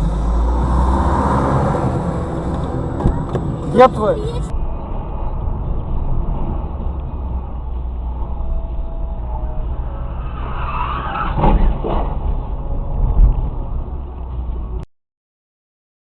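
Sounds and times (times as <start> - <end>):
car road and engine rumble: 0.0 - 14.9
heavy thump: 2.4 - 3.7.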